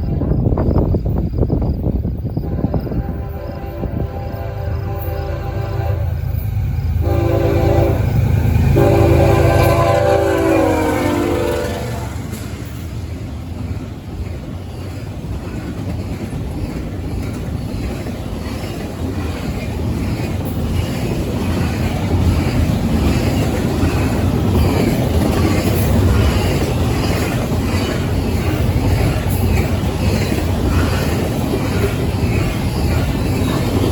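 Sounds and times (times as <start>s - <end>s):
freight train passing: 0.0s - 33.9s.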